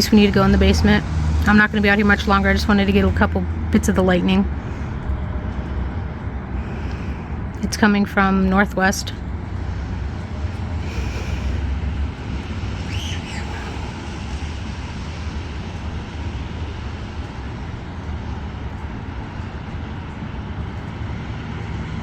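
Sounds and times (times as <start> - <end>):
wind buffeting microphone: 0.0 - 22.0
bird chirping: 12.8 - 14.1.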